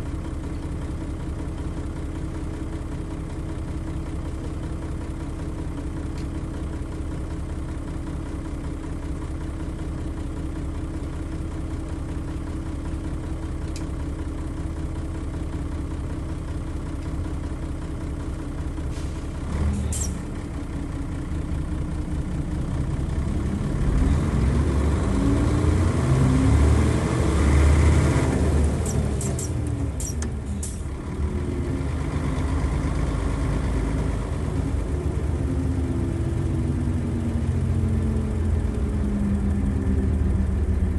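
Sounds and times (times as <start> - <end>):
bus engine idling and revving: 0.0 - 40.9
air brake hiss: 18.9 - 19.3.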